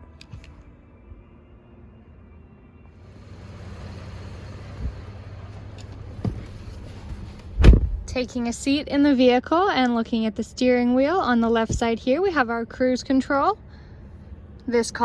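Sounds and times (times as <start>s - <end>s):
heavy thump: 6.2s - 8.1s.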